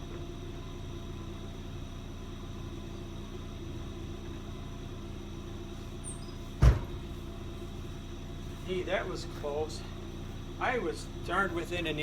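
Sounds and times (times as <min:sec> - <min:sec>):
truck engine running: 0:00.0 - 0:12.0
heavy thump: 0:06.6 - 0:07.2.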